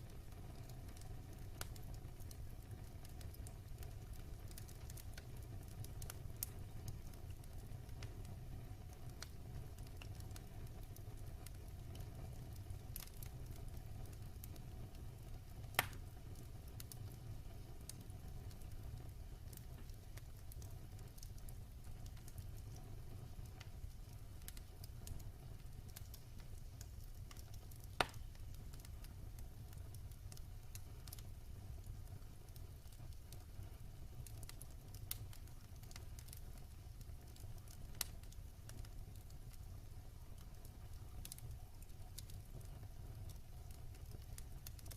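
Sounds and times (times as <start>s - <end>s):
wood fire crackling: 0.0s - 44.9s
sharp pops of fire: 11.4s - 31.9s.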